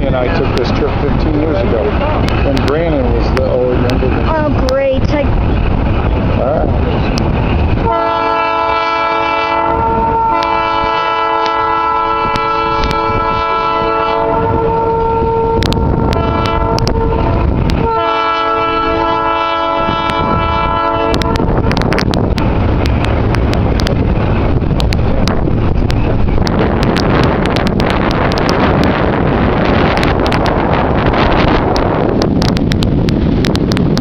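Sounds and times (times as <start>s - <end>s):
train rumbling: 0.0s - 34.0s
sharp clicks of train wheels: 0.3s - 6.2s, 7.0s - 7.9s, 10.3s - 13.2s, 15.6s - 17.8s, 21.0s - 34.0s
train horn blasts: 7.8s - 21.8s.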